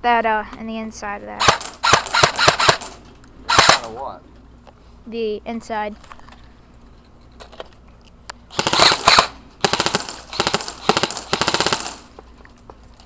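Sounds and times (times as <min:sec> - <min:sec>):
airsoft rifles firing bursts: 0:01.4 - 0:04.0, 0:08.5 - 0:12.1.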